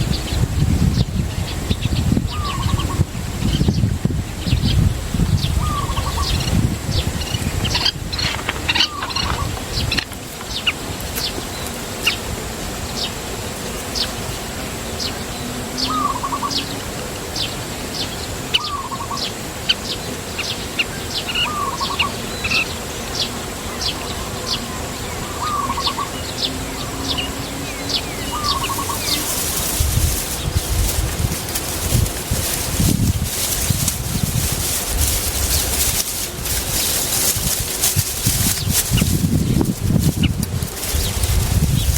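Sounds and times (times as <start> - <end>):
high falling bird chirps: 21.1 - 41.9
rustling: 27.0 - 41.9.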